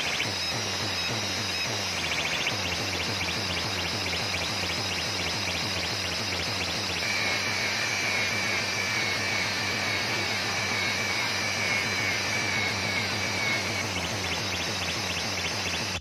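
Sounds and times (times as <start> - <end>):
engine running drone: 0.0 - 16.0
faint high whine: 0.0 - 16.0.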